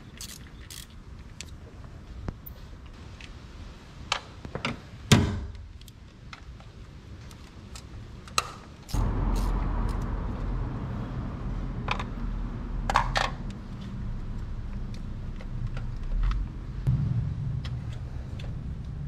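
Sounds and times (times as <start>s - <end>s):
car engine starting and running: 8.9s - 19.0s.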